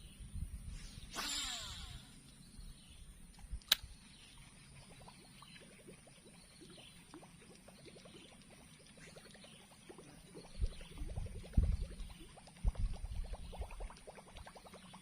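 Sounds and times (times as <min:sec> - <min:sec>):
fishing reel spool whirring: 0:01.0 - 0:02.3
sharp click: 0:03.3 - 0:03.9.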